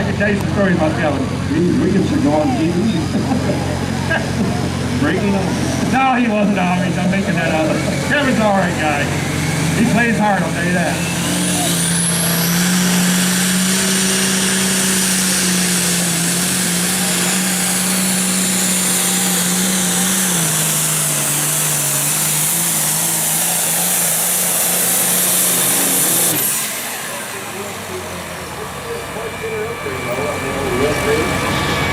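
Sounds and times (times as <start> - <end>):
diesel tractor engine at full throttle: 0.0 - 31.9.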